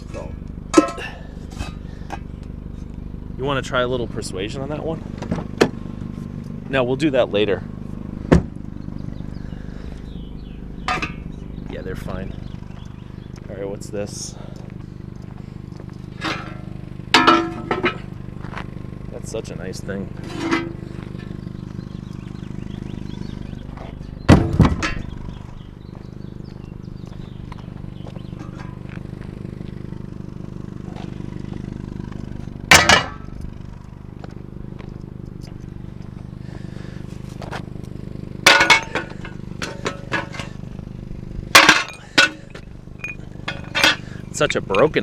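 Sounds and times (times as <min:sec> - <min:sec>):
steady low hum: 0:00.0 - 0:45.0
metal objects clanging: 0:00.7 - 0:01.8, 0:10.9 - 0:11.3, 0:16.2 - 0:18.1, 0:20.2 - 0:21.4, 0:24.4 - 0:25.2, 0:32.7 - 0:33.3, 0:38.5 - 0:40.6, 0:41.5 - 0:45.0
loud clattering thunk: 0:08.3 - 0:08.6, 0:24.3 - 0:25.1.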